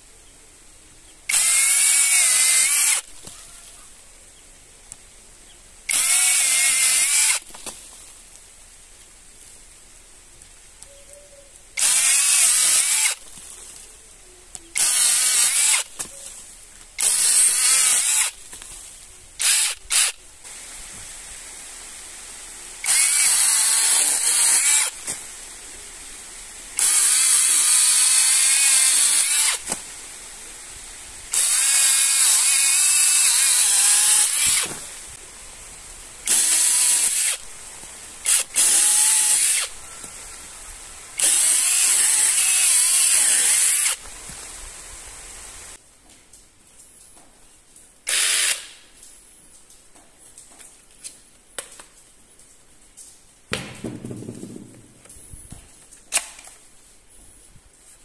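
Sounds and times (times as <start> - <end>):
power tool motor whine: 22.8 - 24.9, 31.3 - 34.7.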